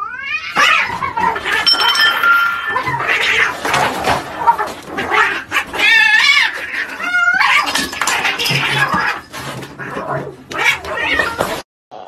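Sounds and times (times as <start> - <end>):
cats hissing and scuffling: 3.8 - 11.6.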